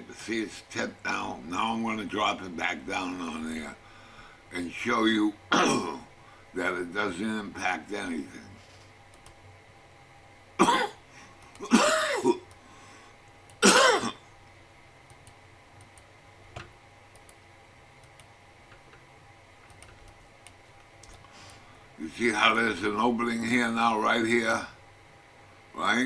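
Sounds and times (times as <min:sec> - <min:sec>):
man clearing his throat: 0:05.5 - 0:06.0, 0:10.6 - 0:11.0, 0:11.6 - 0:12.4, 0:13.6 - 0:14.2.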